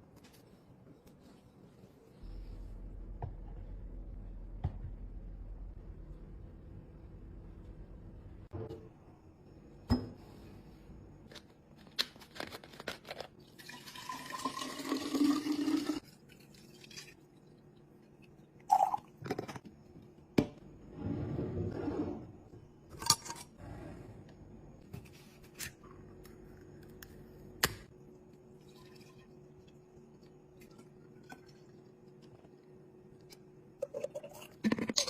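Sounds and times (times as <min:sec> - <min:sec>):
liquid pouring into container: 0:13.6 - 0:17.3.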